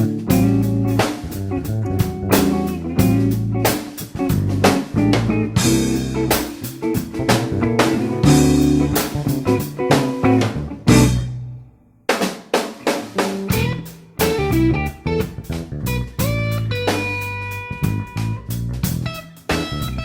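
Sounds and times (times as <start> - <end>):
band with guitar and drums: 0.0 - 20.0.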